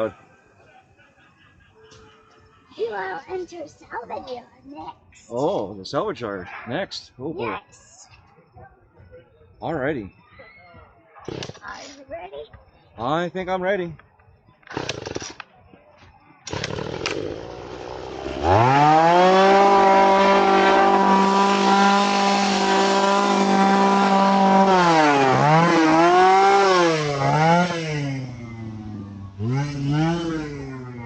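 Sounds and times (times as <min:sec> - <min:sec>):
chainsaw engine revving: 0:11.3 - 0:11.9, 0:14.7 - 0:15.4, 0:16.5 - 0:31.0.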